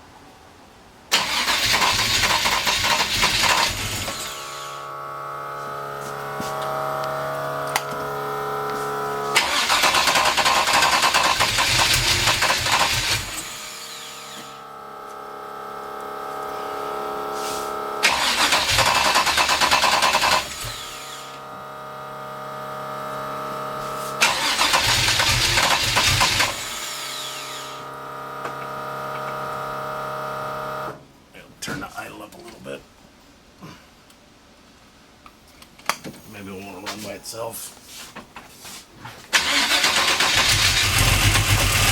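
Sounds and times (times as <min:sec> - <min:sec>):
engine revving in loud bursts: 0:01.2 - 0:13.7, 0:17.0 - 0:26.8, 0:39.4 - 0:41.9.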